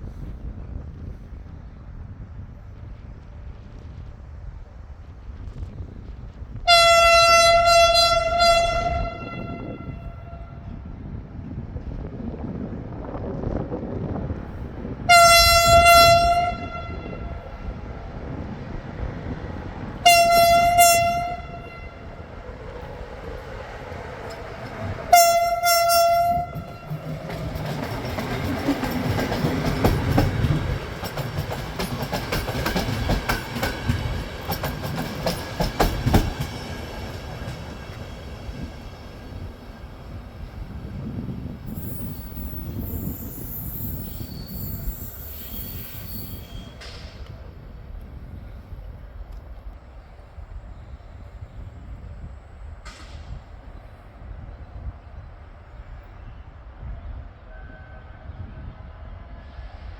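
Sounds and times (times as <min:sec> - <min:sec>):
train rumbling: 0:00.0 - 0:59.9
train horn blasts: 0:06.6 - 0:10.8, 0:15.0 - 0:17.8, 0:20.0 - 0:22.5, 0:24.3 - 0:27.1, 0:57.4 - 0:58.8
wheels clattering over rail joints: 0:20.4 - 0:38.4.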